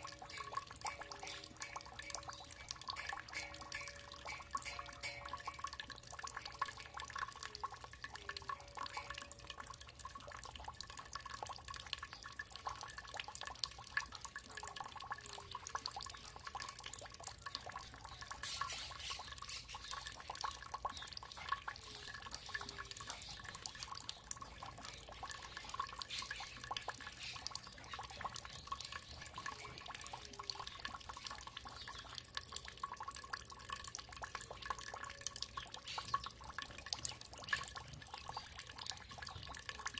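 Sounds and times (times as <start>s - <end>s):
water trickling and dripping: 0.0s - 39.9s.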